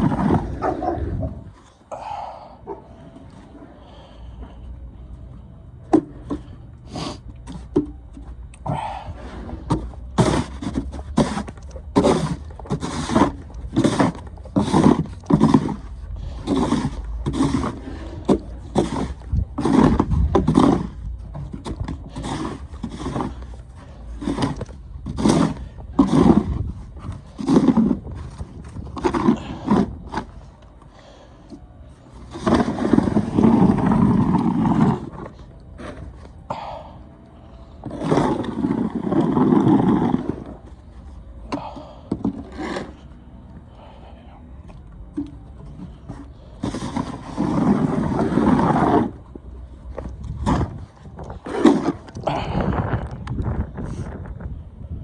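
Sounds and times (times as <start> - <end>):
snow shovel scraping snow: 10.2 - 21.0, 22.1 - 23.4, 24.2 - 26.6, 32.3 - 35.2, 37.9 - 40.5, 42.5 - 43.0, 46.6 - 49.1, 51.4 - 52.0.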